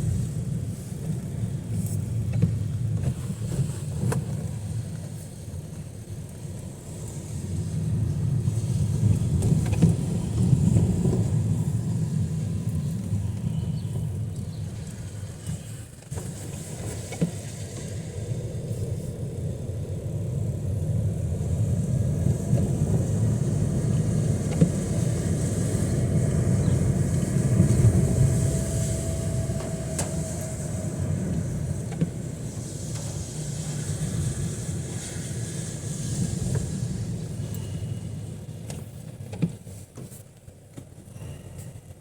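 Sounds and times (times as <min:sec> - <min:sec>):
tyres hissing on wet road: 0:00.0 - 0:40.2
engine rumble: 0:00.0 - 0:42.0.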